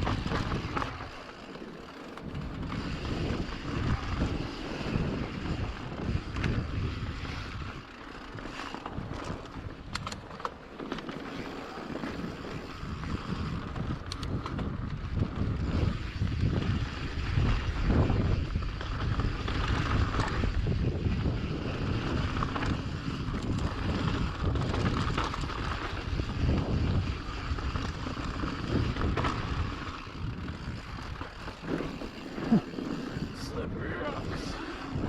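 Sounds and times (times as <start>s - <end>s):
wind buffeting microphone: 0.0s - 1.2s, 1.8s - 10.5s, 11.3s - 35.0s
bike clicks and rattles: 0.0s - 35.0s.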